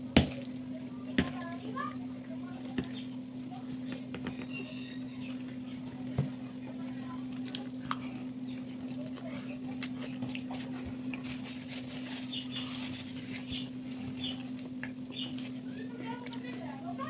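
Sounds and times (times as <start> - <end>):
steady low hum: 0.0 - 17.0
person chewing: 7.3 - 13.0.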